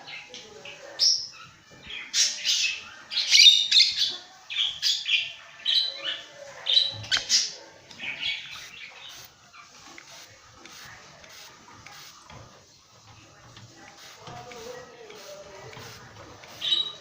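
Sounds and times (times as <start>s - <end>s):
lovebirds squawking and chirping: 1.1s - 10.2s, 15.7s - 17.0s.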